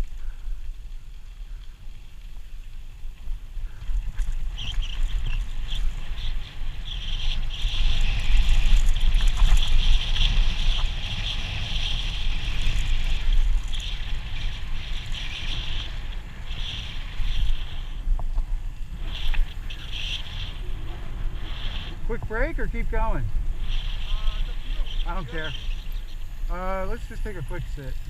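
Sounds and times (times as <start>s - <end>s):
wind buffeting microphone: 0.0s - 28.0s
steady high hiss: 18.7s - 28.0s.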